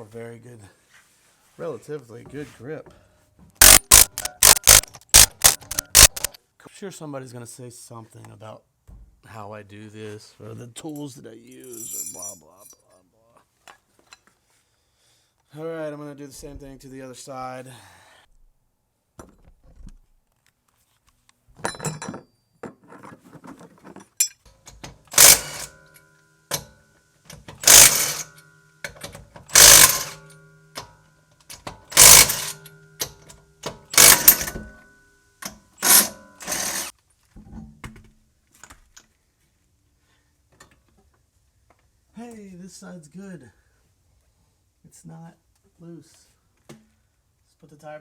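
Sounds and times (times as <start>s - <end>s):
impact wrench bursts: 3.6s - 6.4s, 24.9s - 26.7s, 27.3s - 34.8s, 35.8s - 36.9s
tool clatters: 3.6s - 6.4s, 21.6s - 36.9s.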